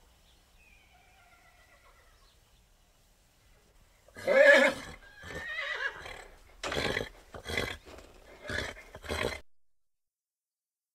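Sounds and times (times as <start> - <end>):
horse neighing: 4.1 - 9.4.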